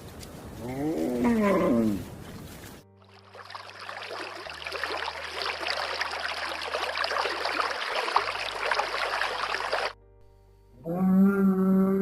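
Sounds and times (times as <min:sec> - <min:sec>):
running water splashing: 0:02.3 - 0:10.0.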